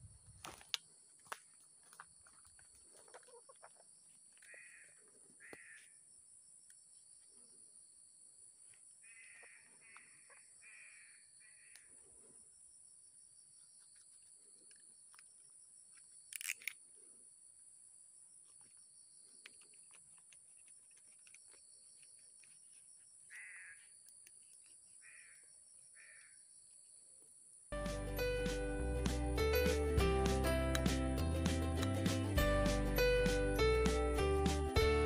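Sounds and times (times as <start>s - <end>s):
bird calls: 9.0s - 12.0s, 21.2s - 26.4s.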